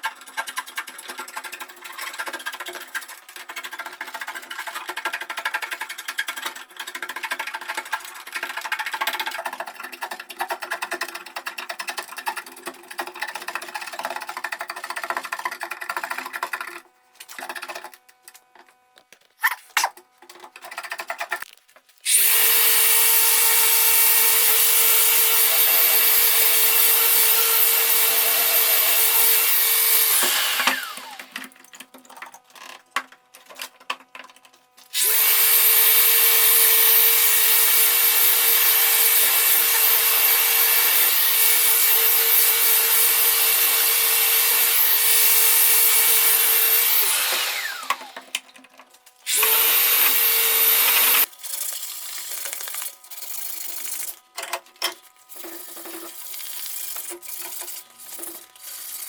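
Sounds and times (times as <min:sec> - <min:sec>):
electric power tool whining: 0:22.0 - 0:31.6, 0:34.9 - 0:48.5, 0:49.1 - 0:54.4.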